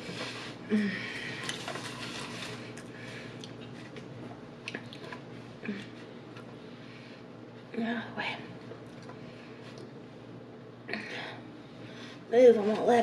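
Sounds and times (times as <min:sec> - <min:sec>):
chewing and wet mouth sounds: 0:01.4 - 0:05.2.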